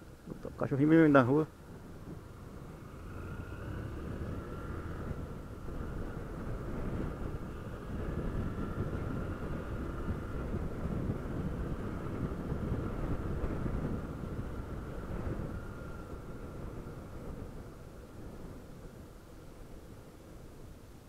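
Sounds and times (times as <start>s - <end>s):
wind rush on microphone: 0.0s - 21.0s
motorcycle engine cruising: 0.2s - 20.1s.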